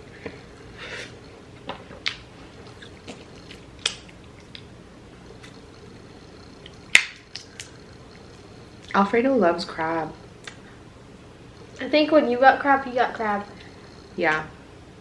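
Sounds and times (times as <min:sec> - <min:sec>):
shells cracking while chewing: 0:01.2 - 0:05.9, 0:06.6 - 0:09.0, 0:10.4 - 0:10.8.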